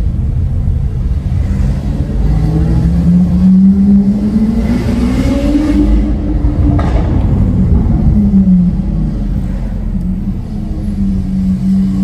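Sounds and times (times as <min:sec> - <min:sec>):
car engine accelerating: 0:00.4 - 0:12.0
low rumble: 0:05.6 - 0:12.0.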